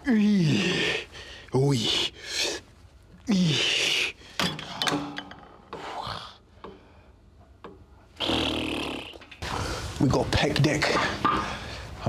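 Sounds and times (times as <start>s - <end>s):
gym equipment clicks and clank: 4.4s - 6.0s.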